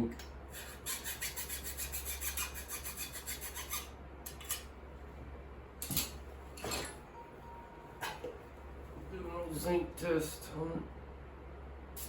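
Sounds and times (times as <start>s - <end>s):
file rasping on metal: 0.6s - 4.6s.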